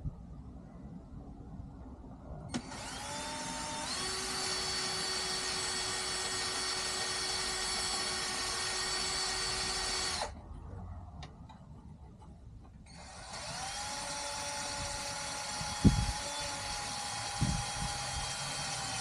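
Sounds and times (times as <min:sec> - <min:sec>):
electric drill boring wood: 0:02.5 - 0:10.3, 0:12.9 - 0:19.0.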